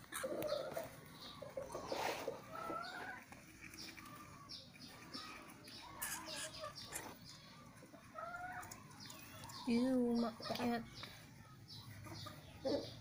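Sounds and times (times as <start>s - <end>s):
bird clucking calls: 0.0s - 10.8s.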